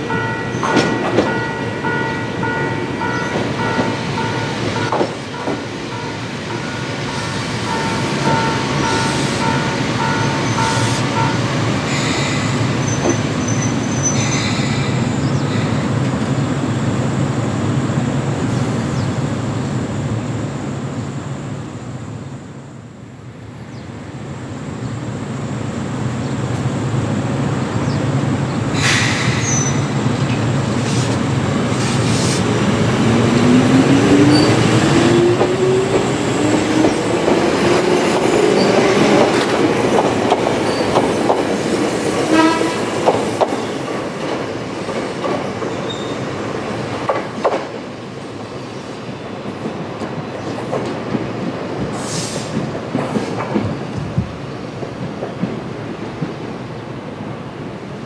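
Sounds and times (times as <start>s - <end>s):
train wheels clacking over rail joints: 0.6s - 2.0s, 3.3s - 5.7s, 33.4s - 47.8s, 49.6s - 56.4s.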